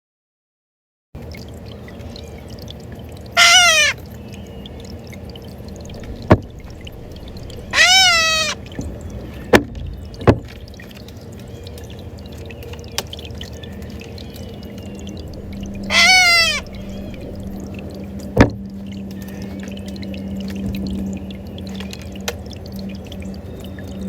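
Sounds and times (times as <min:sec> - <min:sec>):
bird calling loudly: 0:03.4 - 0:04.0, 0:07.6 - 0:08.6, 0:15.7 - 0:17.6.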